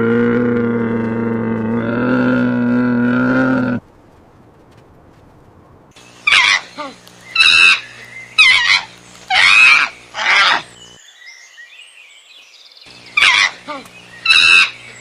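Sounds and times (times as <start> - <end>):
animal giving harsh calls: 6.2 - 10.7, 13.2 - 14.8.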